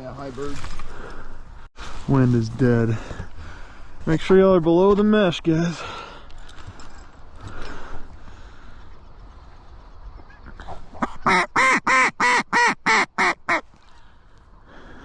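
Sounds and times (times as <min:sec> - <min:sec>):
duck call quacks: 0:11.0 - 0:13.6.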